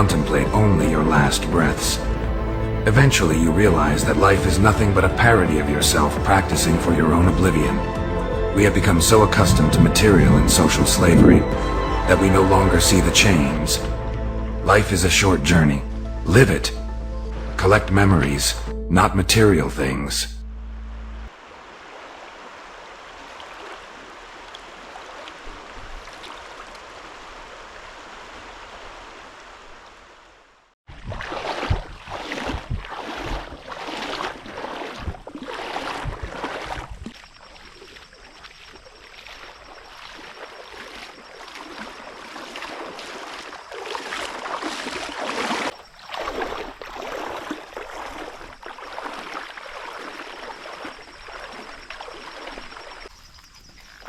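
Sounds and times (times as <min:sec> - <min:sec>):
flowing river water: 0:00.0 - 0:18.7, 0:21.3 - 0:54.0.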